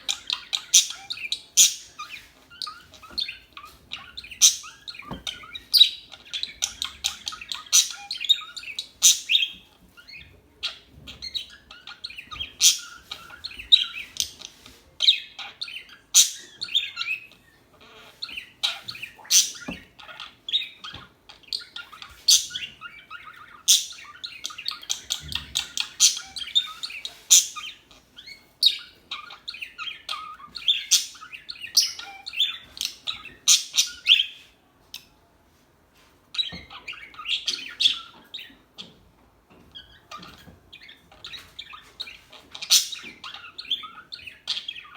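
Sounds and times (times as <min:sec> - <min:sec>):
budgerigars chirping: 0:00.0 - 0:34.4, 0:36.4 - 0:44.9.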